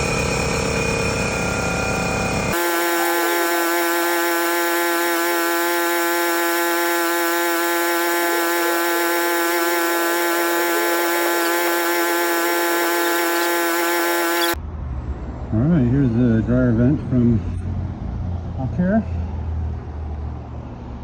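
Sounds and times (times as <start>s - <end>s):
electric motor high-pitched whine: 0.0s - 14.6s.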